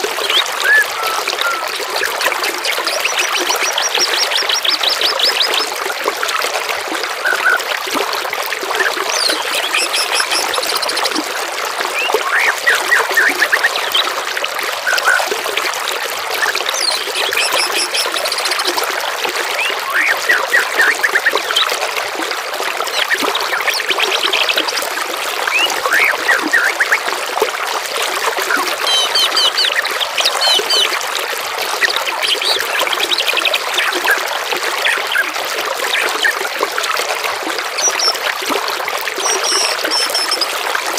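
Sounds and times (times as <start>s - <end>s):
trickling water: 0.0s - 40.9s
songbirds chirping and trilling: 9.2s - 11.2s.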